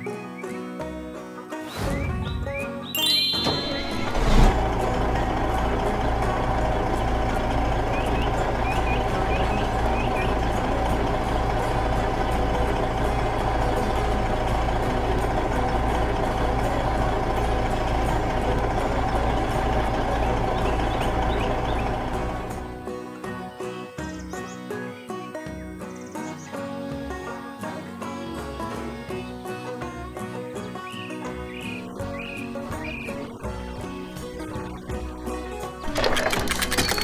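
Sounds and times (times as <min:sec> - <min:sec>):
heavy vehicle engine rumbling: 0:01.7 - 0:23.0, 0:31.4 - 0:37.0.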